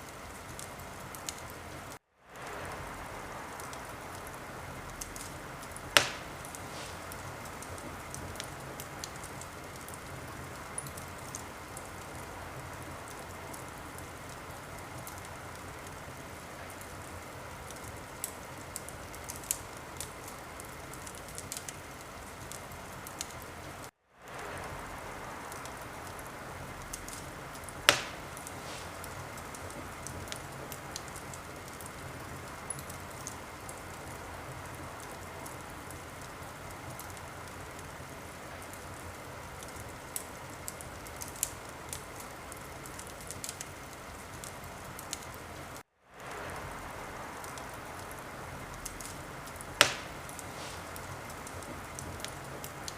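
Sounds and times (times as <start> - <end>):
fire popping: 0.0 - 52.9
wood fire crackling: 0.0 - 52.9.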